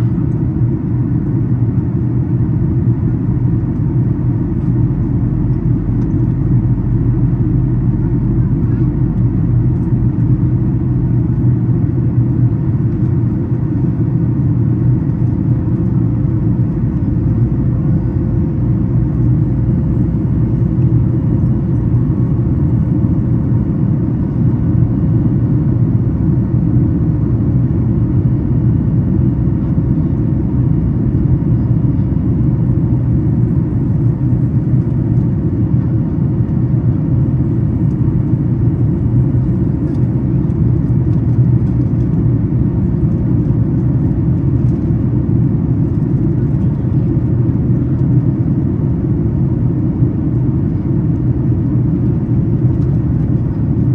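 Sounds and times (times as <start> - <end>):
aircraft cabin low rumble: 0.0 - 53.9.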